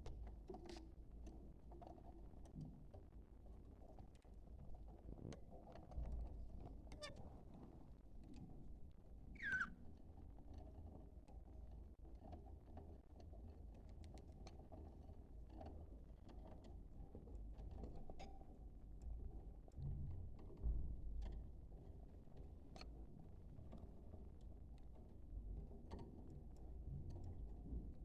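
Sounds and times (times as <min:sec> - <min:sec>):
budgerigar call: 0:09.4 - 0:09.7.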